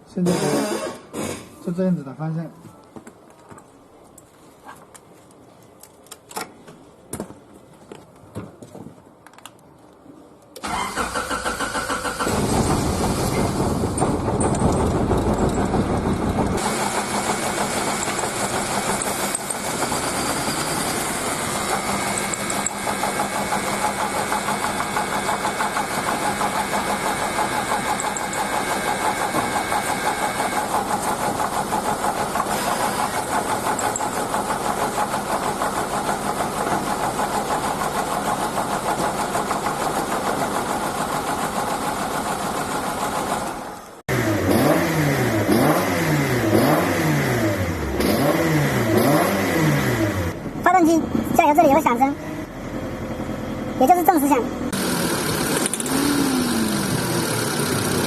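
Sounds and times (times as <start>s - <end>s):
car starter cranking: 10.6s - 29.7s
car engine running and idling: 11.0s - 44.4s, 48.7s - 58.0s
screwdriver clicking in ignition: 21.8s - 23.2s, 27.7s - 28.6s, 33.5s - 34.2s, 55.5s - 56.1s.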